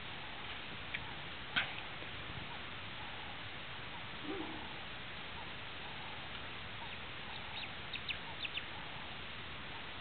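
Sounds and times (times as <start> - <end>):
background hiss: 0.0 - 10.0
birds chirping: 2.5 - 10.0
sharp high bird calls: 6.8 - 8.7.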